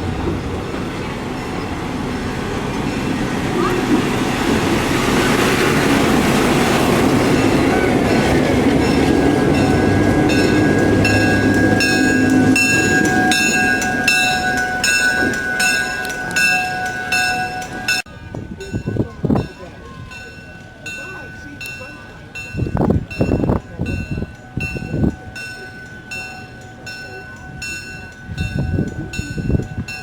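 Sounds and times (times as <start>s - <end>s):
steady high tone: 0.0s - 18.2s
train rumbling on rails: 0.0s - 30.0s
wheels clicking over rail joints: 0.0s - 30.0s.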